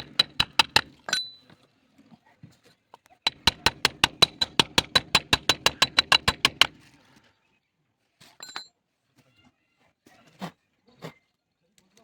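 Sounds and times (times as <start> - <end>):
fast sharp knocks: 0.0 - 1.0, 3.3 - 6.8.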